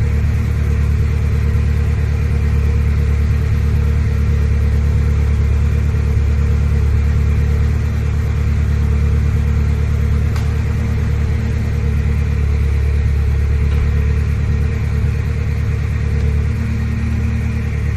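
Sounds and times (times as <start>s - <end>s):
car engine idling: 0.0s - 17.9s.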